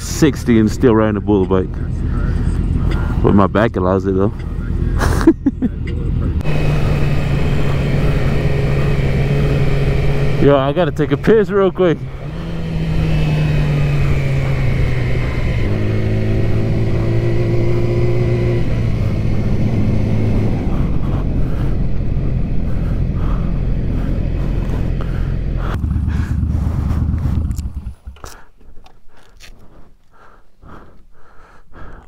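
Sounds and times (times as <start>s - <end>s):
motorcycle engine at low revs: 0.0s - 29.5s
wind noise: 19.0s - 28.4s.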